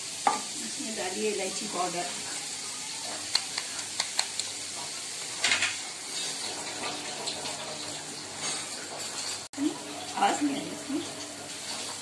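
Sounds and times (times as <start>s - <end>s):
carrots sizzling in fat: 0.0s - 12.0s
spatula scraping a pan: 1.0s - 3.9s, 4.7s - 9.5s.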